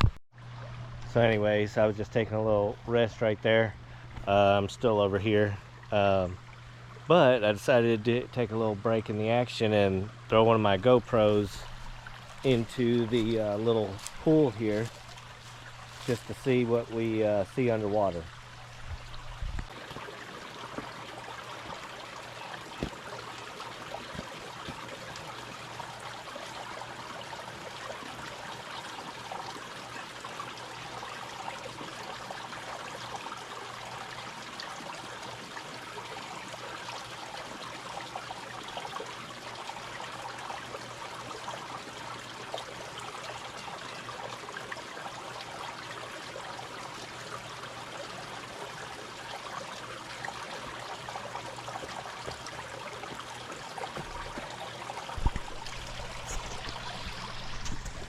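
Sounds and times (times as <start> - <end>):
steady low hum: 0.4 - 19.8, 53.9 - 58.0
creek water rushing over rocks: 9.7 - 58.0.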